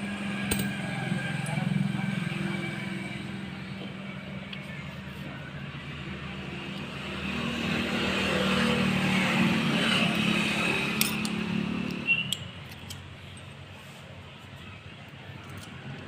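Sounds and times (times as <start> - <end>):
vehicle engine passing by: 6.9 - 12.2.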